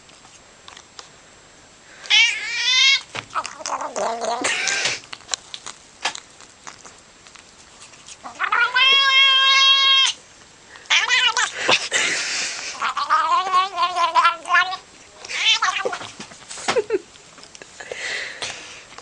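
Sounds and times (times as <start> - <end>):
cat yowling: 2.1 - 5.1, 8.2 - 10.2, 10.9 - 11.8, 12.7 - 16.1.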